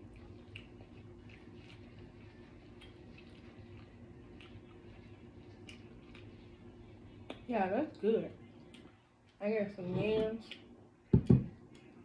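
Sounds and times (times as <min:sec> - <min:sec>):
chewing mouth clicks: 0:00.0 - 0:06.4.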